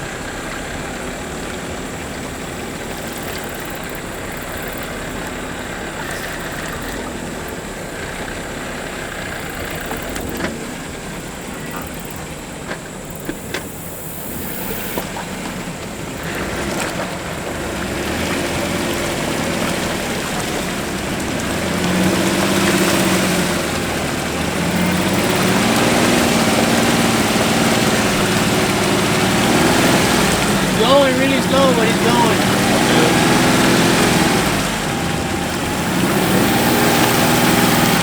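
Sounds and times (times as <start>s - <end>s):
mud and water splashing: 15.3s - 38.0s
engine straining under load: 20.7s - 38.0s.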